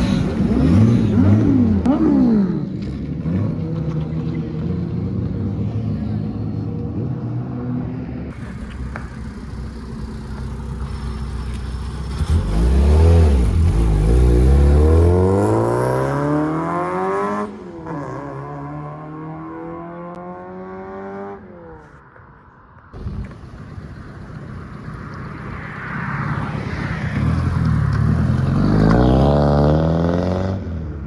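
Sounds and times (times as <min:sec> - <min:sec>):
car engine revving: 0:00.0 - 0:04.3, 0:08.3 - 0:21.4.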